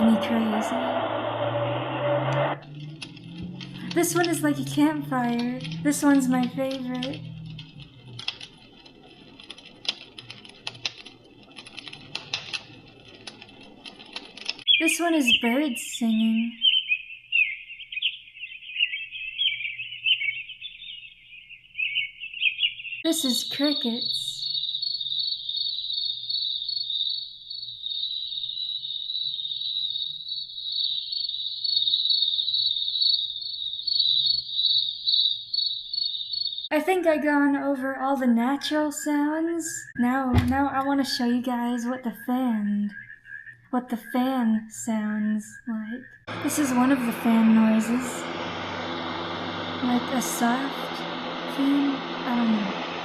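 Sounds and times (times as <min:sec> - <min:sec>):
faint low hum: 0:00.0 - 0:14.2, 0:46.3 - 0:53.0
campfire crackling from small speaker: 0:02.6 - 0:14.7
recorded crickets chirping: 0:02.6 - 0:15.4, 0:23.1 - 0:36.7.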